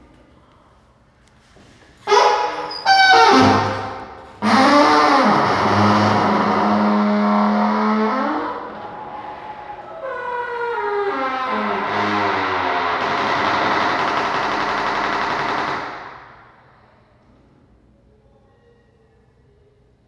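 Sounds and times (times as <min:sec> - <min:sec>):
blaring horn blasts: 0:02.1 - 0:04.8.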